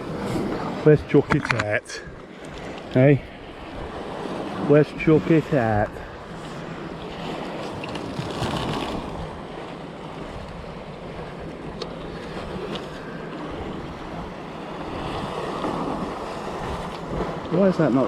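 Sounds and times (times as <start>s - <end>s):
wind on microphone: 0.0s - 9.4s
surf washing on rocky shore: 0.0s - 18.0s.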